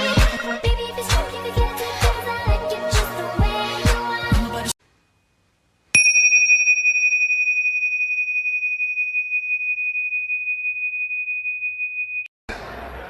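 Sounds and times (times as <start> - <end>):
metal bell ringing: 6.0 - 12.3.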